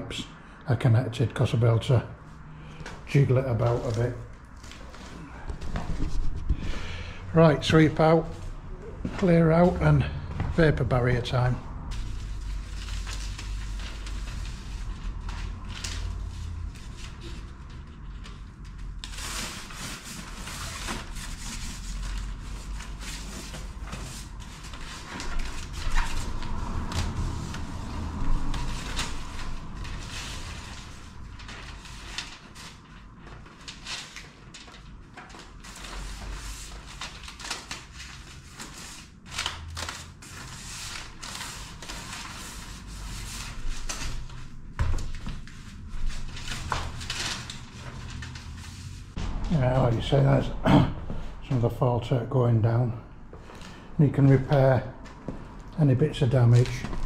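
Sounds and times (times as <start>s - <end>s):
brushing and rustling strokes: 3.0s - 6.7s, 11.9s - 34.8s, 39.8s - 50.0s.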